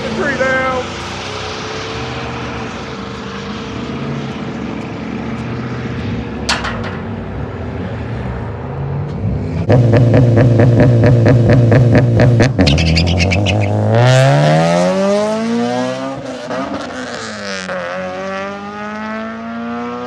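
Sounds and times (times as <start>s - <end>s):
vehicle engine running: 9.6s - 13.7s.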